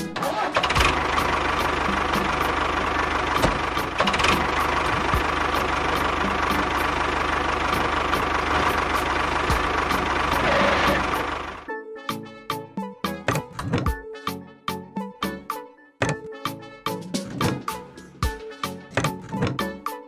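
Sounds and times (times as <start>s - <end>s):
tractor engine running: 0.0s - 11.7s, 16.0s - 16.4s, 17.1s - 19.7s
regular engine knock: 0.7s - 11.6s.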